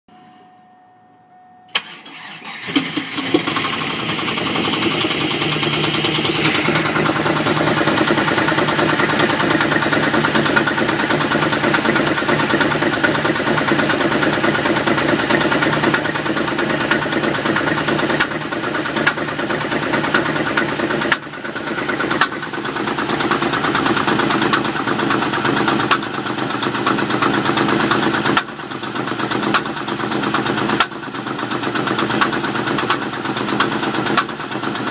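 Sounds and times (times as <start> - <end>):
faint steady tone: 0.1 - 1.8
car engine cranking and starting: 1.7 - 34.9
car engine idling: 1.7 - 34.9
high-pitched whine: 5.1 - 8.4.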